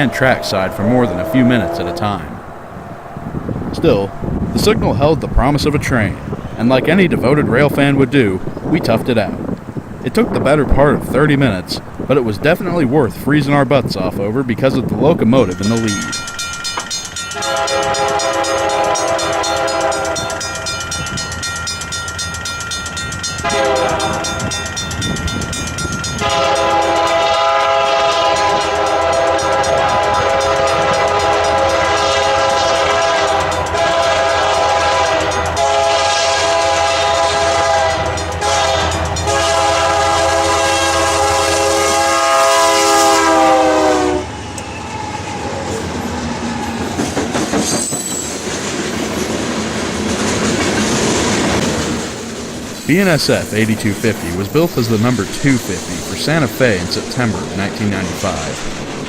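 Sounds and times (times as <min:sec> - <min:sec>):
locomotive chime air horn: 0:00.0 - 0:02.4, 0:15.5 - 0:21.3, 0:23.2 - 0:24.8, 0:26.0 - 0:44.7.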